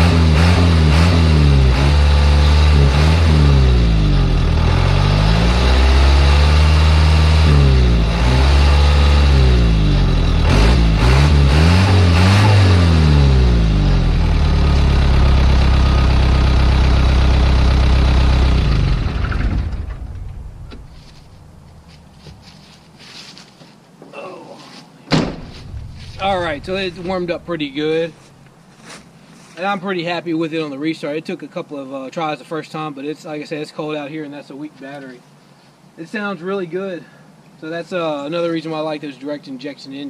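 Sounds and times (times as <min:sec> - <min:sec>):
diesel engine revving and idling: 0:00.0 - 0:22.6, 0:25.4 - 0:28.6.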